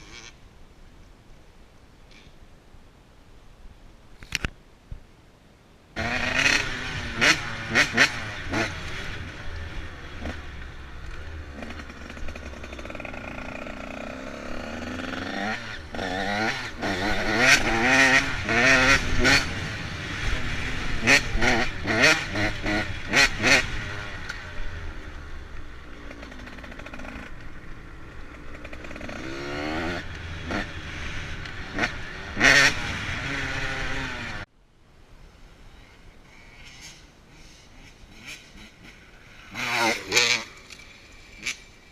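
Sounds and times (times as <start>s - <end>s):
motorcycle engine revving: 6.0s - 34.5s, 36.7s - 41.9s.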